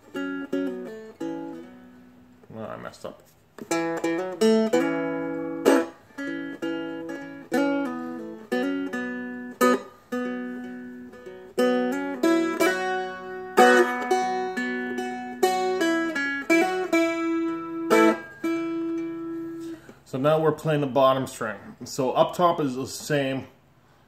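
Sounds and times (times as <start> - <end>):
strumstick playing: 0.0 - 2.5, 3.5 - 20.0.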